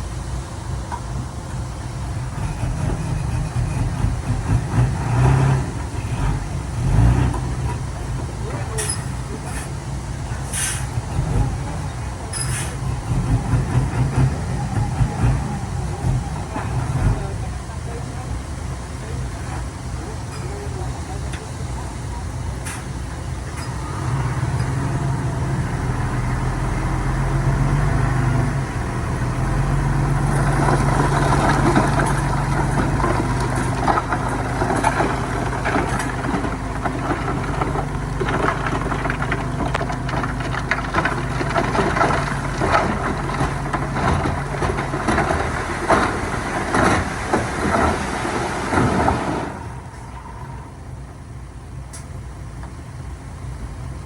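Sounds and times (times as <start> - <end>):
diesel engine running: 0.0 - 54.0
clatter of rattles and knocks: 29.6 - 50.2.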